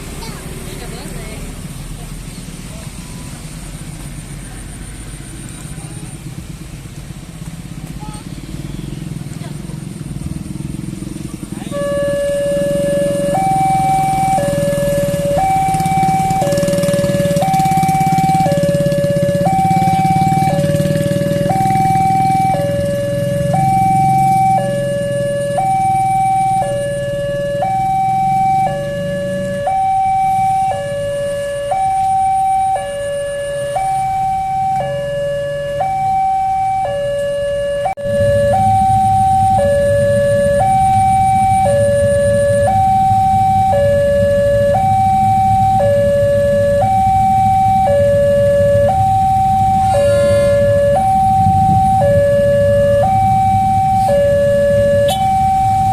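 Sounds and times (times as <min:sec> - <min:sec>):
level crossing two-tone alarm: 0:11.6 - 0:55.9.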